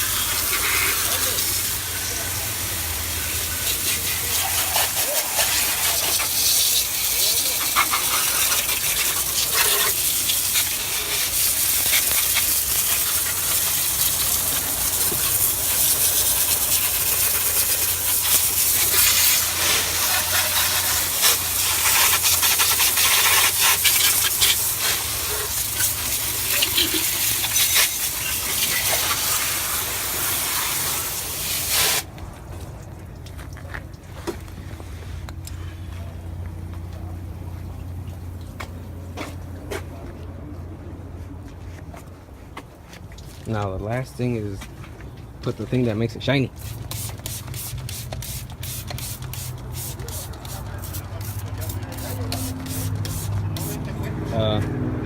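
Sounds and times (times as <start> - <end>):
hose spraying water: 0.0 - 38.8, 46.3 - 54.6.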